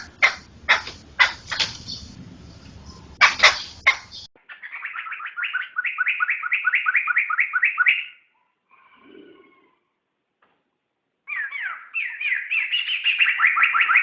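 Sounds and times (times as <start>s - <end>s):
harsh scratchy bird calls: 0.0s - 8.2s, 11.3s - 14.0s
repeated whistled bird notes: 2.8s - 8.3s, 11.3s - 14.0s.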